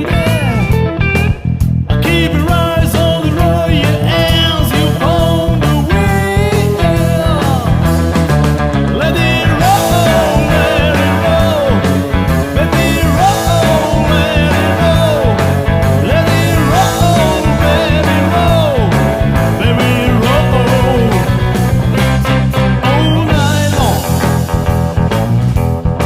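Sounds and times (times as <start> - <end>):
bass line: 0.0 - 26.0
blues-rock music: 0.0 - 26.0
electric guitar bending notes: 0.0 - 26.0.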